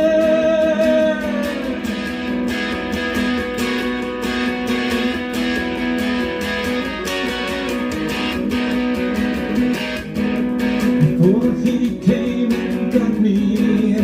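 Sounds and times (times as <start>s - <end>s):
person singing: 0.0s - 2.0s, 10.9s - 14.0s
guitar strumming chords: 0.0s - 14.0s.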